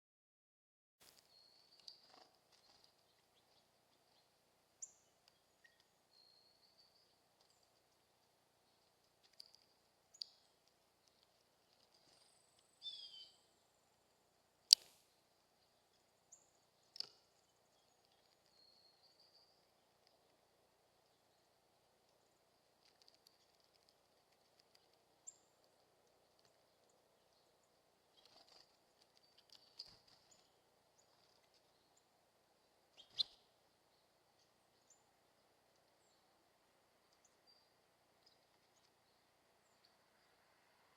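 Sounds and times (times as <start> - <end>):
faint bird chirps and clicks: 1.0 - 14.0, 14.6 - 40.4
faint steady hum: 1.1 - 40.9
falling bird chirp: 11.7 - 13.5, 32.9 - 34.2.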